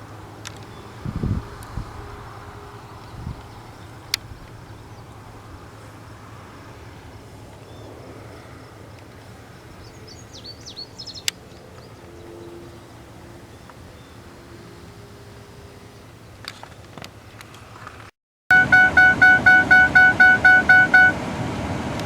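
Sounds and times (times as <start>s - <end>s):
distant machinery engine hum: 0.0s - 22.0s
bird chirping: 9.8s - 12.4s.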